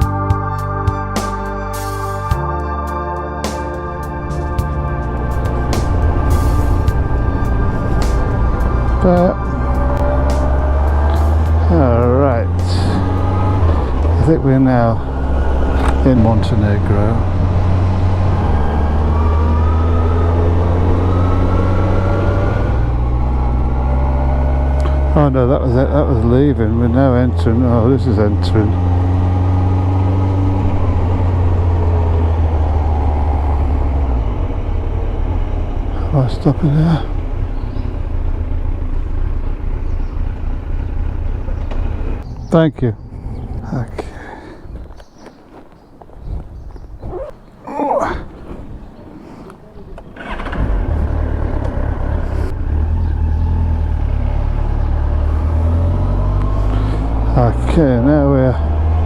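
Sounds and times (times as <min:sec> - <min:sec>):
motorcycle engine running: 0:03.4 - 0:42.4, 0:50.0 - 0:59.0
wind noise: 0:42.2 - 0:47.4, 0:48.0 - 0:49.0.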